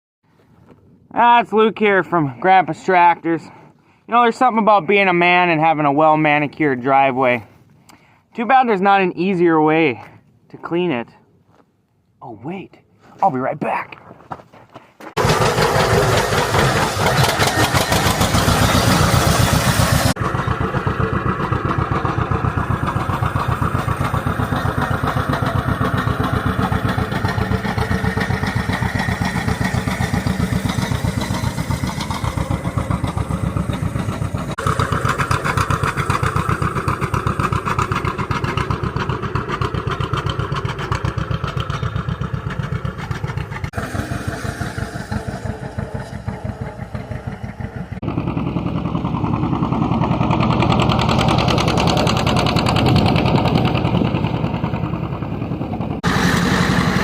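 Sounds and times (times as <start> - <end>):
tractor engine chugging: 15.2 - 57.0.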